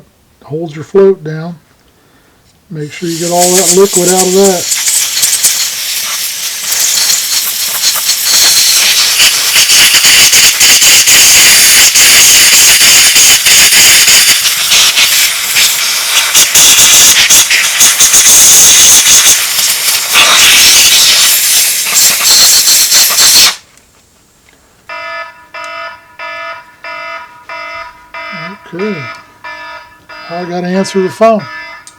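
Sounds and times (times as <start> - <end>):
compressed air hissing from blow gun: 2.8 - 23.7
phone ringtone: 24.9 - 31.9.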